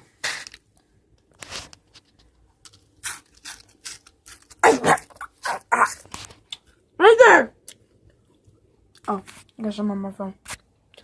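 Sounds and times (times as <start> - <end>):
dry cereal crunching: 1.4 - 6.7.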